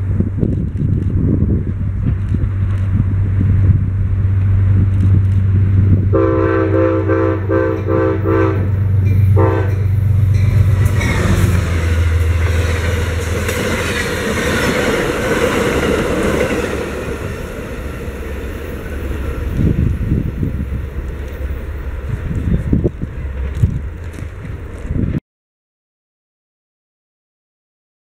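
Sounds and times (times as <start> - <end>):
train wheels rushing on rail: 0.0 - 25.2
train horn short blasts: 6.1 - 10.0.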